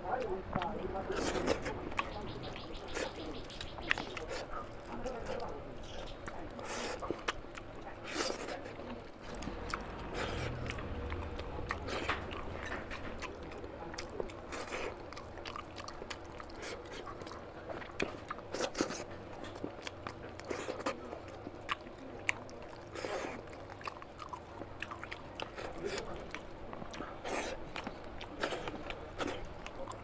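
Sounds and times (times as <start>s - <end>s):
man chewing food: 0.0s - 30.0s
mouth clicks and smacks: 1.3s - 4.6s.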